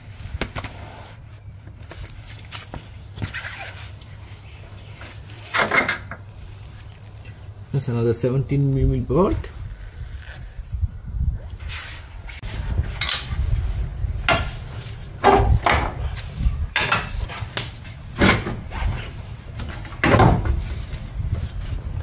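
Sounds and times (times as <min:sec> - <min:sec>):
metal tools clinking and scraping: 0:12.8 - 0:13.4, 0:16.7 - 0:17.3.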